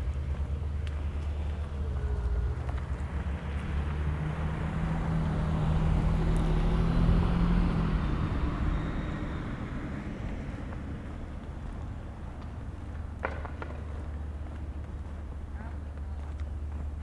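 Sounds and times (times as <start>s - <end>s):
car driving past: 1.1s - 11.8s.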